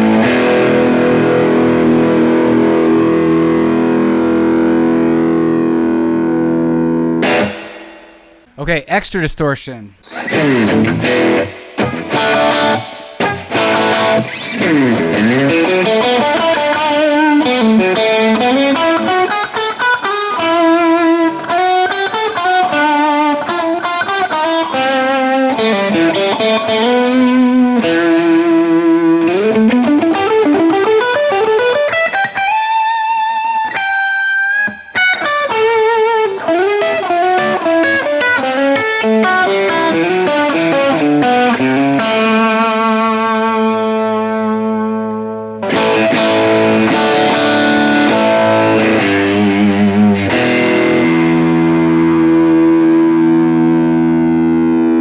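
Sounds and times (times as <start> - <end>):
distorted electric guitar lead: 42.0 - 55.0.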